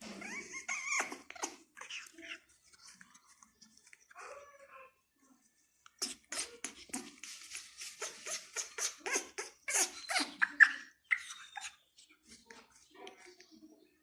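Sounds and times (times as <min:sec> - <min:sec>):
parrot harsh calls: 0:08.0 - 0:11.7.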